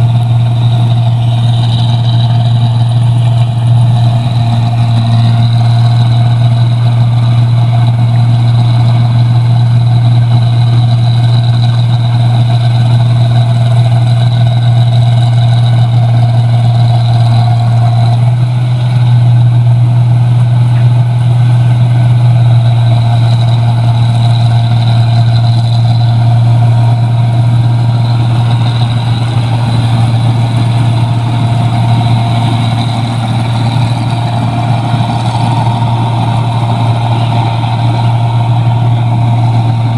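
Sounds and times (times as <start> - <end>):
combine harvester engine drone: 0.0 - 39.9
high machine whines: 0.0 - 39.9.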